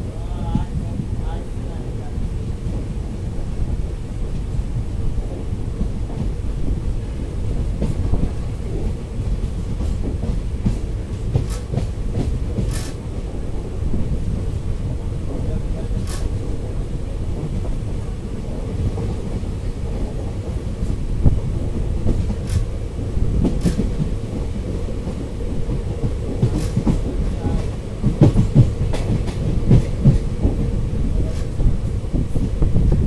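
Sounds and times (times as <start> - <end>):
low rumble of train wheels: 0.0 - 33.0
wheels clacking over rail joints: 7.6 - 13.0, 15.2 - 17.9, 20.4 - 33.0.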